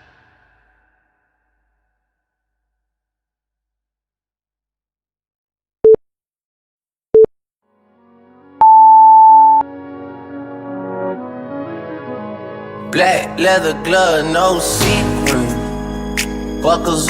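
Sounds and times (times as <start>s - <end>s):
music: 7.6s - 17.0s
timer beeps: 8.6s - 9.6s.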